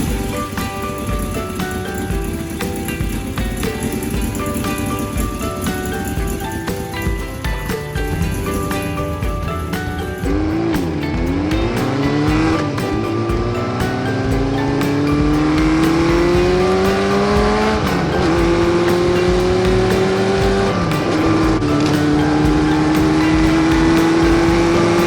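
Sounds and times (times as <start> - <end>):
motorcycle engine revving through gears: 10.3 - 25.0.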